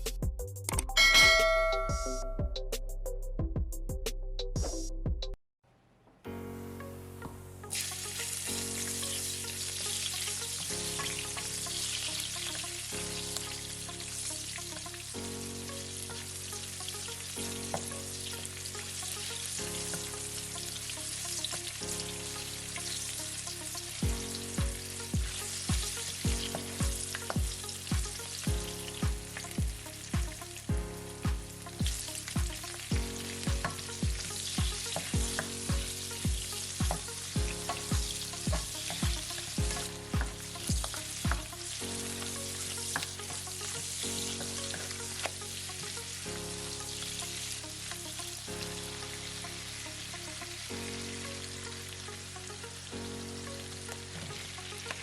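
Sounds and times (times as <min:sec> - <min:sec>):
background music with beat: 0:00.0 - 0:05.4, 0:21.4 - 0:46.4
food sizzling in a pan: 0:07.6 - 0:55.0.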